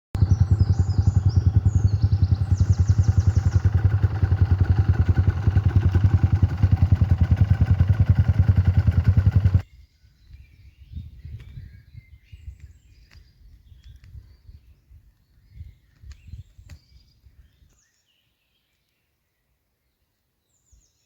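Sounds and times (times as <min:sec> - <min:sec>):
motorcycle engine idling: 0:00.2 - 0:09.6.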